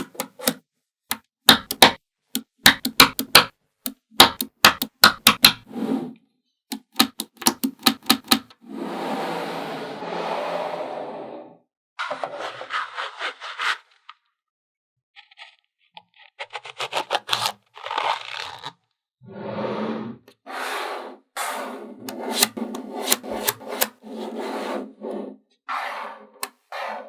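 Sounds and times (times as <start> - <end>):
magnetic balls snapping together: 0.0 - 5.6, 6.7 - 8.5
magnetic balls rubbing and scraping: 19.4 - 27.0.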